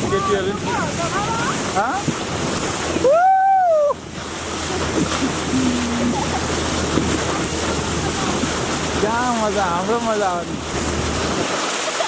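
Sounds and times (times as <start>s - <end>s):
sea noise: 0.0s - 12.0s.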